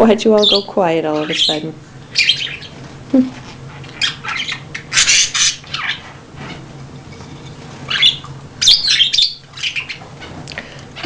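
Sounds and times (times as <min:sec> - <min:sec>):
baby budgerigars squawking: 0:00.2 - 0:02.8, 0:03.7 - 0:06.6, 0:07.9 - 0:10.4.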